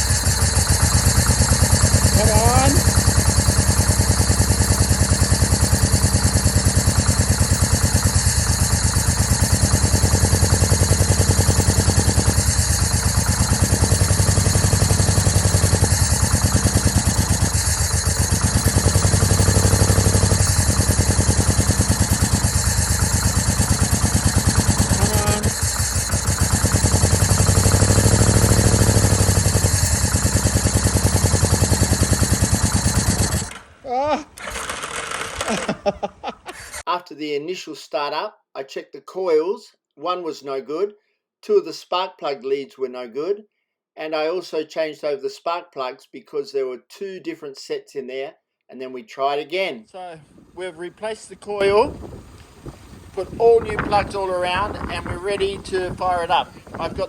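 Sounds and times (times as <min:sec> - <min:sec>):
motorcycle engine revving: 0:00.0 - 0:36.8, 0:50.3 - 0:57.0.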